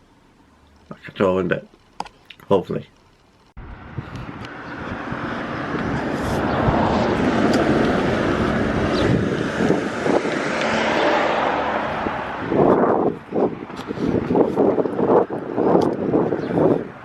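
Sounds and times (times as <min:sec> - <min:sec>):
vehicle passing: 0:03.6 - 0:17.0
wind on microphone: 0:03.6 - 0:17.0.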